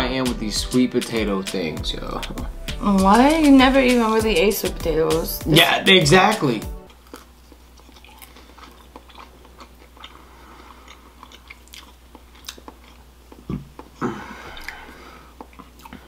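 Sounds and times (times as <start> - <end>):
biting and chewing food: 6.8 - 14.0, 15.4 - 16.0
wet mouth clicks: 14.6 - 14.8.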